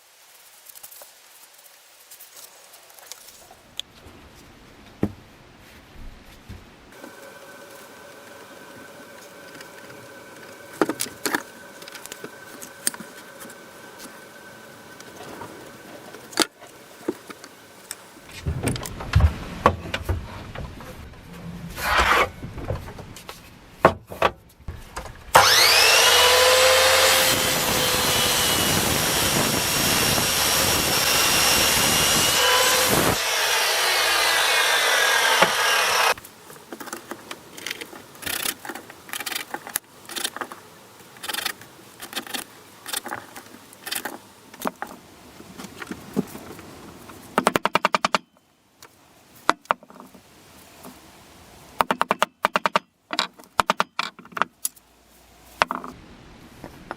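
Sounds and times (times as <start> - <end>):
handling knocks and scrapes: 15.1 - 25.3
power tool whining: 25.2 - 36.2.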